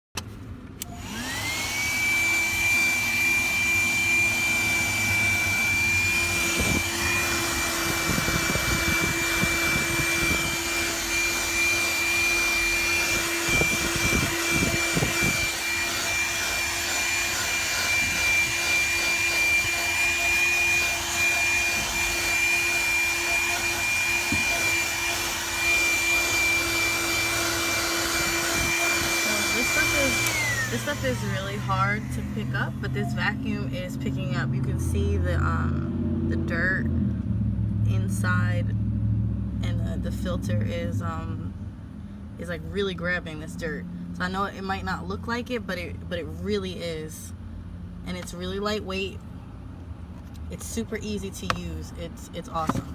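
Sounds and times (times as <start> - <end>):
handheld vacuum motor whining: 0.8 - 34.7, 52.3 - 52.9.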